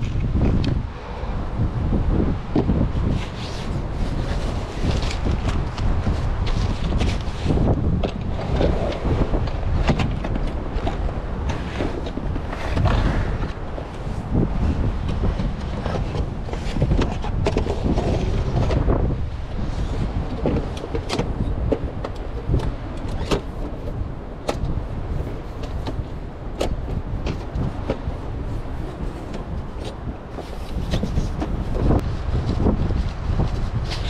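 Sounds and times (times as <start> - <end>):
strong wind gusting: 0.0 - 34.0.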